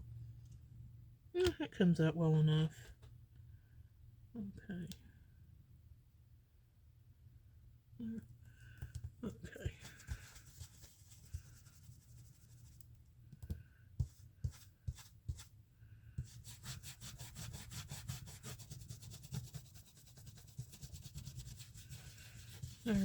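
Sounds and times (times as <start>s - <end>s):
rapid scrubbing strokes on paper: 9.6s - 12.8s, 14.0s - 15.6s, 16.2s - 23.0s
ink tool taps and scrapes: 12.7s - 15.5s.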